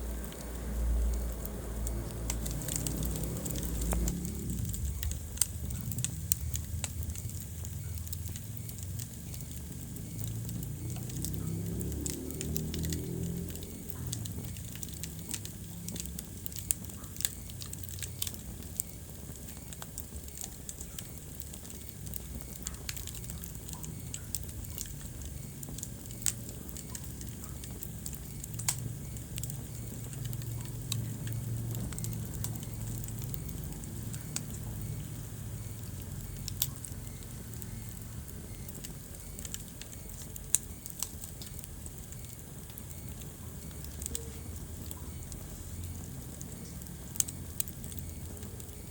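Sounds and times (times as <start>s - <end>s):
low rumble of flame: 0.0s - 48.9s
wood fire crackling and popping: 0.0s - 48.9s.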